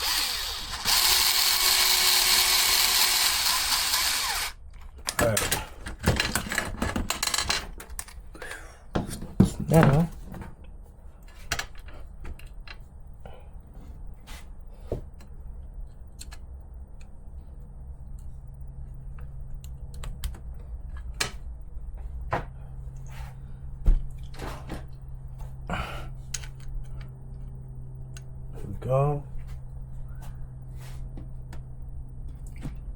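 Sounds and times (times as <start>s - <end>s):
low steady hum: 0.0s - 32.9s
small parts clicking and tapping: 26.3s - 27.5s.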